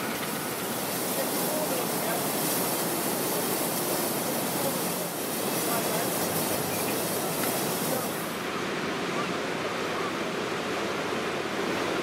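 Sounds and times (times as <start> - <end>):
high hiss: 0.0 - 8.4
train rushing on rails: 0.0 - 9.8.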